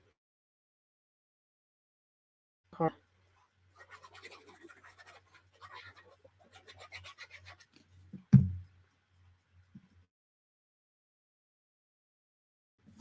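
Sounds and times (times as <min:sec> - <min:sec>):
glue stick rubbing on paper: 0:03.8 - 0:07.9
thump: 0:08.2 - 0:08.7.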